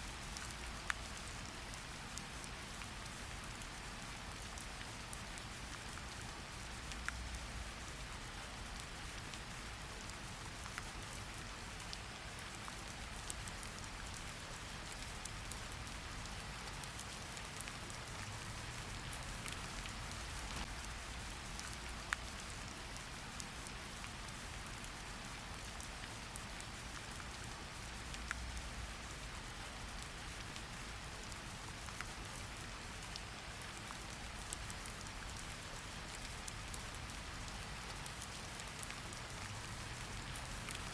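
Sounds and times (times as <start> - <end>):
steady rain falling: 0.0 - 40.9
sharp drip ticks: 33.1 - 40.9.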